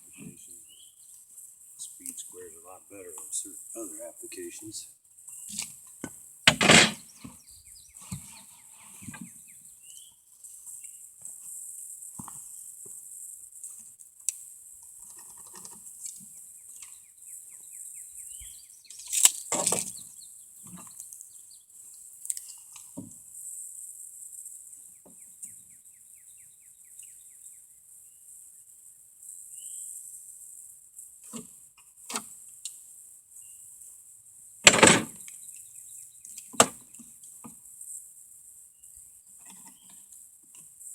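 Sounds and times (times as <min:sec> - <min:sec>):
steady high hiss: 0:00.0 - 0:40.9
knocks from handling lumber: 0:06.0 - 0:07.4, 0:34.7 - 0:35.2.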